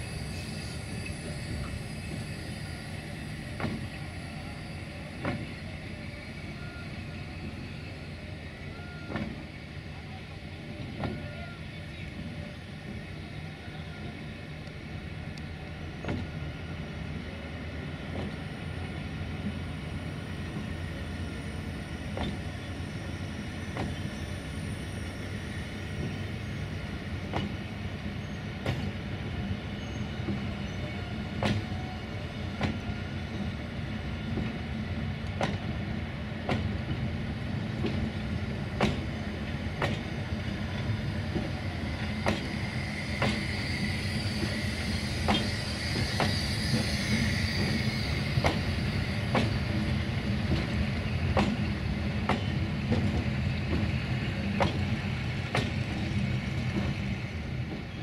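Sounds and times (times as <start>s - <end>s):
train rumbling past: 0.0s - 58.0s
wheel squeal: 40.6s - 51.3s.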